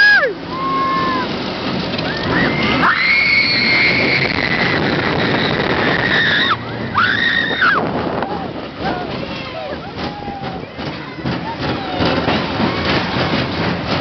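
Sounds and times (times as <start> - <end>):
riders screaming: 0.0 - 1.4, 2.0 - 10.7
roller coaster rushing and rumbling: 0.0 - 14.0.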